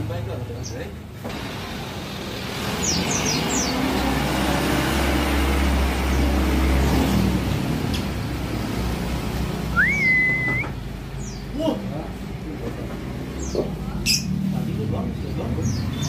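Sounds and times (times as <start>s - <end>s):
motor vehicle passing: 1.3s - 11.4s, 12.0s - 16.0s
whistled note: 9.7s - 10.8s
high falling bird chirps: 9.7s - 11.5s.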